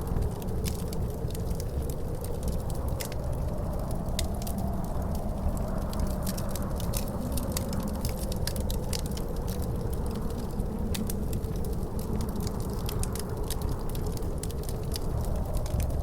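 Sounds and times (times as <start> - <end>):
fireplace fire crackling: 0.0 - 16.0
wind howling: 0.0 - 16.0.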